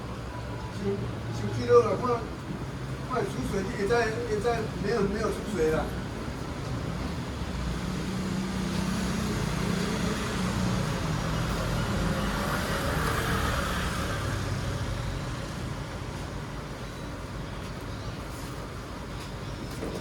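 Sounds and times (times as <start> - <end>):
vehicle engine passing by: 7.2 - 15.6.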